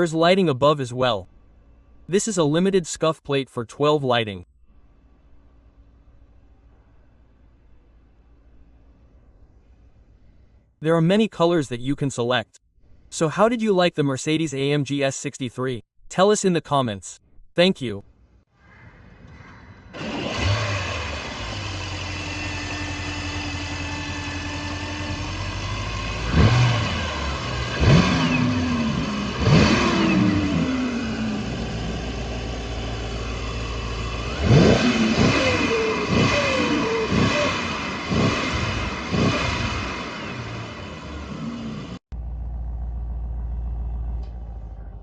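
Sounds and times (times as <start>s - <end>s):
car engine idling and revving: 19.9s - 45.0s.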